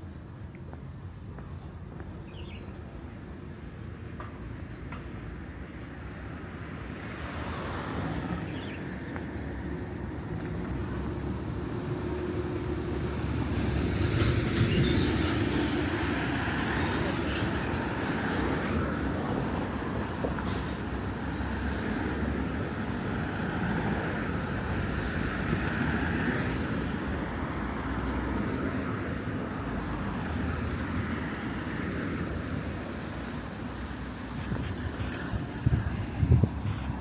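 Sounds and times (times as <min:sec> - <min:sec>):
road traffic going by: 0:00.0 - 0:37.0.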